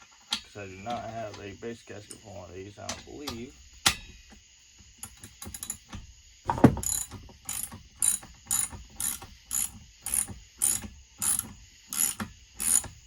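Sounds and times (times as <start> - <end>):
socket ratchet clicking: 5.0 - 6.0, 6.8 - 13.0.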